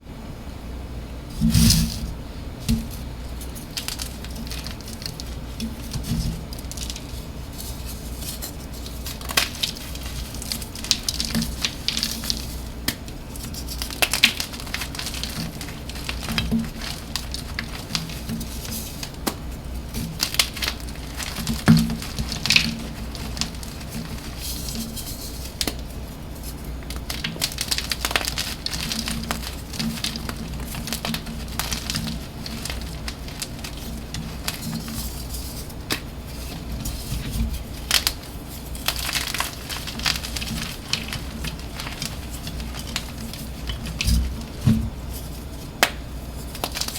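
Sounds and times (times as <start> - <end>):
chalk crumbling by hand: 1.3 - 46.9
chalk snapping: 2.6 - 25.9, 45.8 - 46.9.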